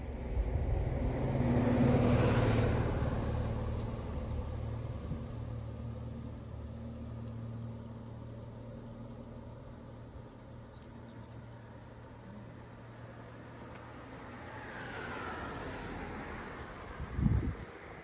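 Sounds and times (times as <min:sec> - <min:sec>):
car passing by: 0:00.0 - 0:07.8, 0:11.4 - 0:18.0.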